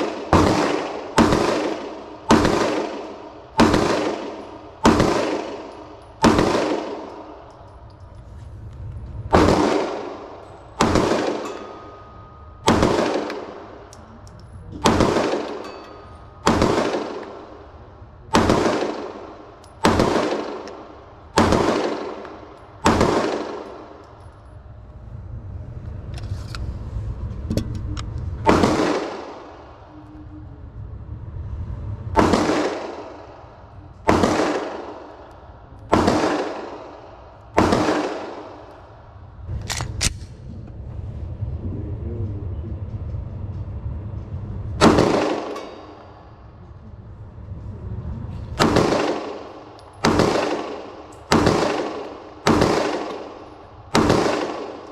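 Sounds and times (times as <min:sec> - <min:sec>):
ringing gunshots: 0:00.0 - 0:07.8, 0:09.3 - 0:13.9, 0:14.6 - 0:24.3, 0:28.4 - 0:29.9, 0:32.2 - 0:35.3, 0:35.9 - 0:39.0, 0:44.8 - 0:46.4, 0:48.6 - 0:54.9.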